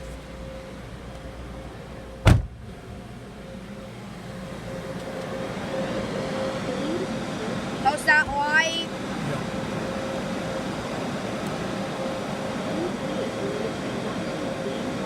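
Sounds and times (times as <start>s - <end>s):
steady hum: 0.0s - 15.0s
car door shutting: 2.2s - 2.7s.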